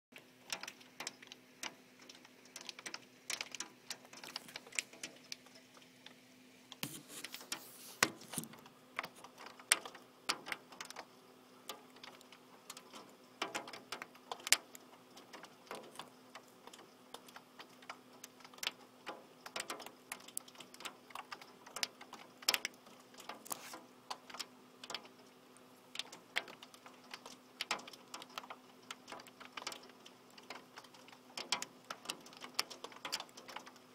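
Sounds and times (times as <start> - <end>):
faint steady hum: 0.2 - 33.9
rain and hail on hard surface: 0.4 - 5.5, 7.4 - 33.9.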